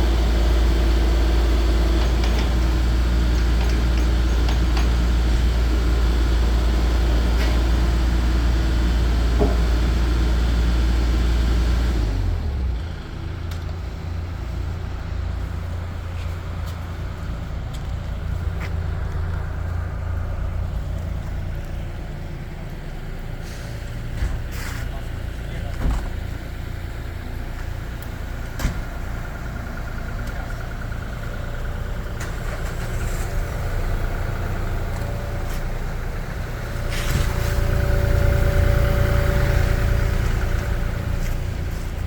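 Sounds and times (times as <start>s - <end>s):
excavator diesel engine running: 0.0s - 42.0s.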